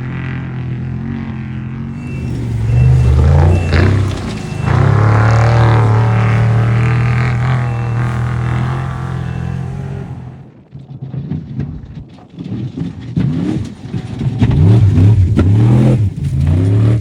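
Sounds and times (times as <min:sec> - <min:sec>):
race vehicle engine revving past: 0:02.0 - 0:10.4.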